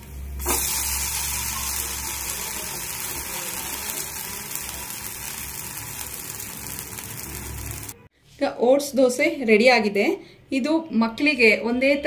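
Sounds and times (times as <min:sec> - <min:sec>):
dosa sizzling in oil: 0:00.0 - 0:08.1.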